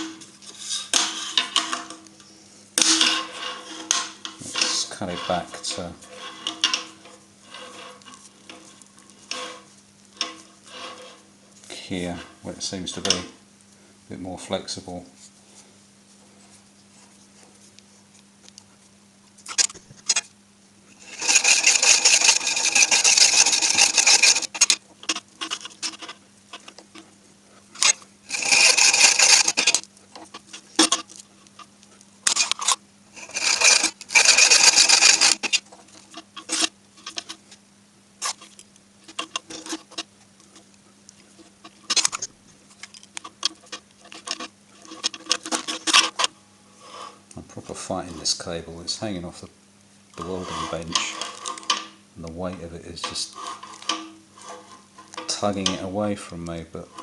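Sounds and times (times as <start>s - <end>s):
handling clicks and scrapes: 0.0s - 13.6s, 15.2s - 37.6s, 38.2s - 49.5s, 50.1s - 57.0s
cable being cut rasping: 21.0s - 26.8s, 27.8s - 31.2s, 32.2s - 37.4s.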